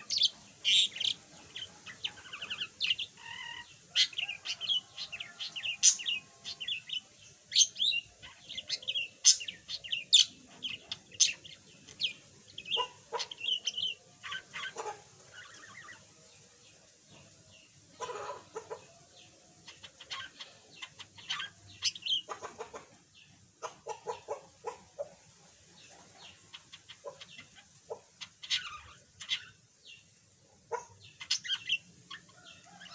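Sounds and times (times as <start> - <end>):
budgerigar chirping and chattering: 0.0 - 16.0, 19.7 - 22.8, 26.3 - 29.6, 30.7 - 32.9.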